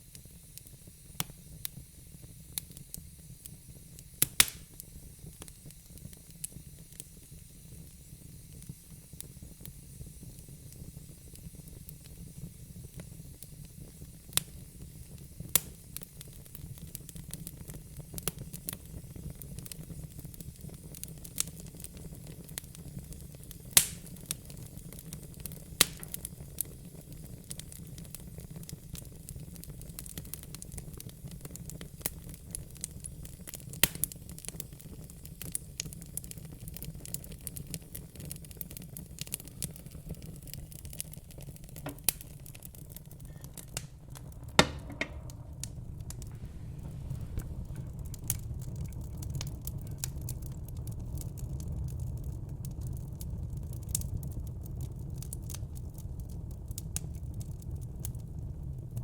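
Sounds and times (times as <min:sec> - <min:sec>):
fire crackling: 0:00.0 - 0:59.0
low steady fire rush: 0:39.7 - 0:52.7.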